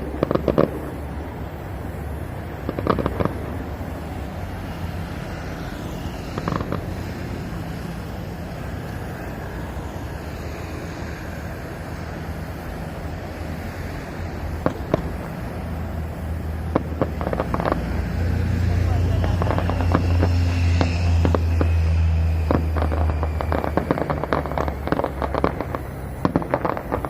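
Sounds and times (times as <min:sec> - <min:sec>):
firework pops: 0:00.0 - 0:01.0, 0:02.6 - 0:03.7, 0:06.3 - 0:07.2, 0:14.5 - 0:15.6, 0:16.6 - 0:18.0, 0:19.2 - 0:21.8, 0:22.4 - 0:27.0
firework bangs: 0:00.0 - 0:27.0
low wind rumble: 0:00.0 - 0:27.0.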